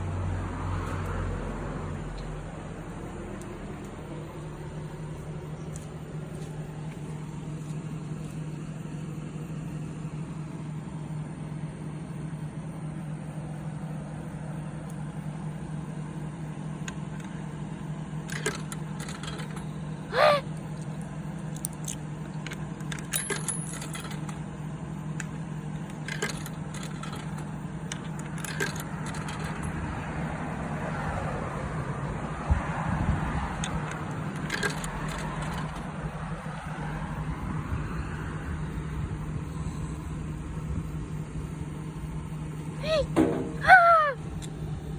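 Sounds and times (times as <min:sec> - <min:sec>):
coins clicking into vending machine: 0:18.3 - 0:19.7, 0:21.6 - 0:24.4, 0:25.2 - 0:29.8, 0:33.6 - 0:35.9
ringing coin clink: 0:22.9 - 0:24.4.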